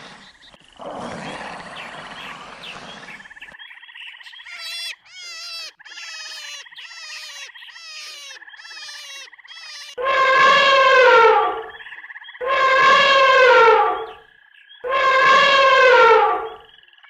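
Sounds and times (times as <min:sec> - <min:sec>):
animal croaking calls: 0:00.0 - 0:03.6, 0:04.3 - 0:14.2, 0:14.8 - 0:16.7
pulsing animal trill: 0:04.4 - 0:11.8, 0:12.4 - 0:14.2, 0:14.8 - 0:16.6
loud falling animal call: 0:04.5 - 0:11.8, 0:12.4 - 0:14.2, 0:14.9 - 0:16.6.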